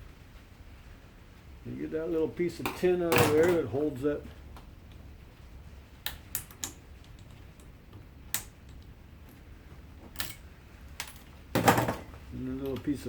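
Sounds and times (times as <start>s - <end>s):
small metal parts clicking: 6.0s - 7.7s, 10.1s - 11.4s.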